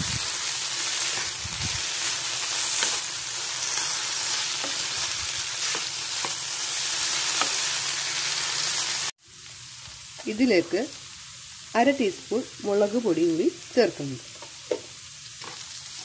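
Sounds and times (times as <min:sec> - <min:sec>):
potatoes sizzling in oil: 0:00.0 - 0:16.0
spatula knocking and scraping pan: 0:07.3 - 0:07.7.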